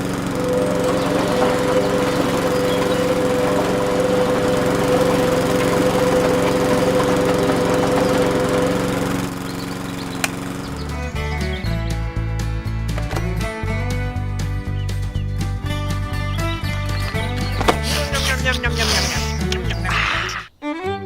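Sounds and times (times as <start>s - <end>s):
small motor humming: 0.0s - 11.7s.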